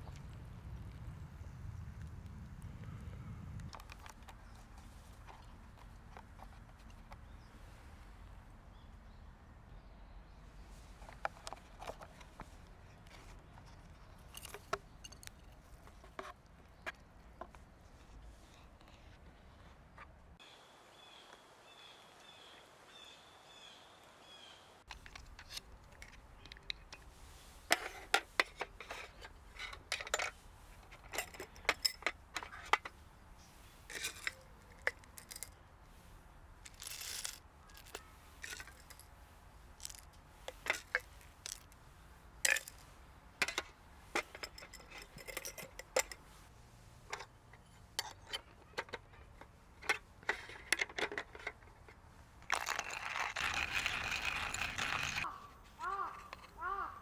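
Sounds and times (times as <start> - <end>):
low steady background hum: 0.0 - 57.0
hard objects clinking and knocking: 14.2 - 17.6, 24.9 - 41.8, 42.4 - 46.4, 47.0 - 55.3.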